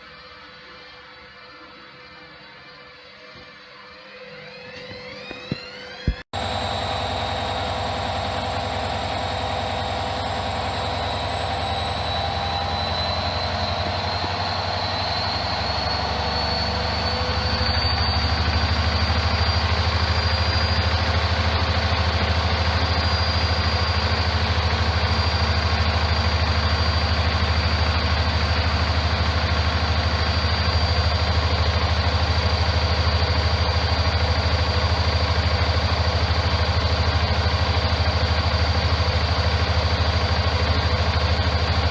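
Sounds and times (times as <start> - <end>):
washing machine motor whine: 0.0 - 41.9
steady low hum: 5.2 - 36.8.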